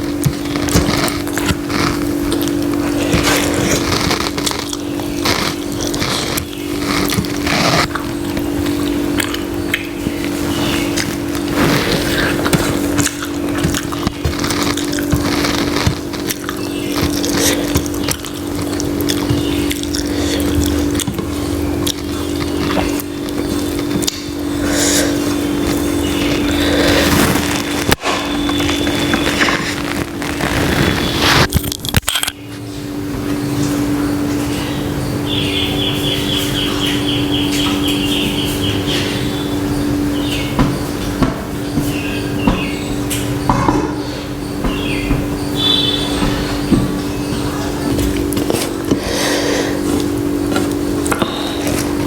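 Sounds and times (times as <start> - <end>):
wet chewing and smacking: 0.0 - 32.4, 36.4 - 49.2
low electrical hum: 0.0 - 52.0
high chirping trill: 33.4 - 48.0.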